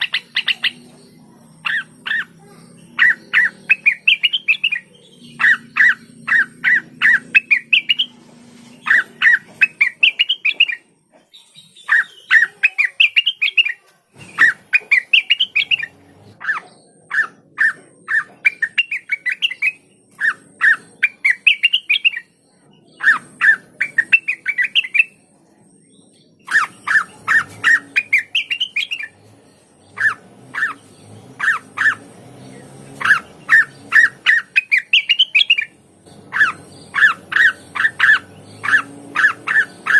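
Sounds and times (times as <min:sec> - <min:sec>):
bird singing sharp chirps: 0:00.0 - 0:25.4, 0:26.0 - 0:39.9.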